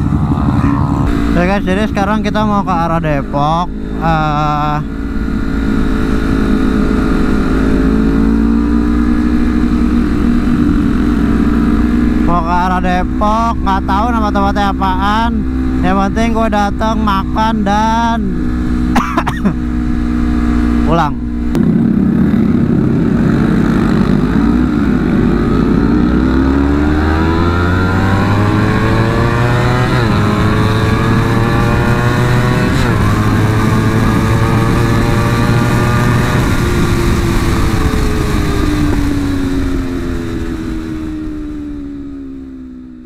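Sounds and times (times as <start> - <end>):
wind rushing: 0.0 - 4.0
motorcycle engine accelerating: 0.0 - 43.0.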